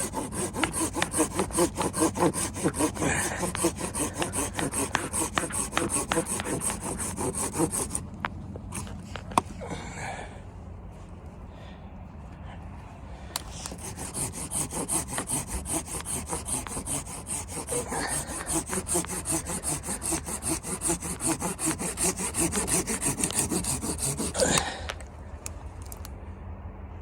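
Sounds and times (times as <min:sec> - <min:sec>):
hand saw cutting wood: 0:00.0 - 0:08.1, 0:08.7 - 0:09.5, 0:13.4 - 0:24.9.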